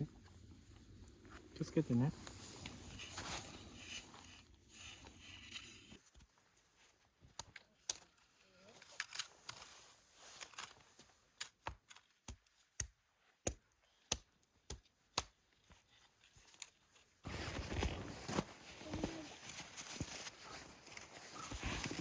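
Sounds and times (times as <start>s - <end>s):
rough rustling and crunching: 0.6s - 6.0s, 17.2s - 22.0s.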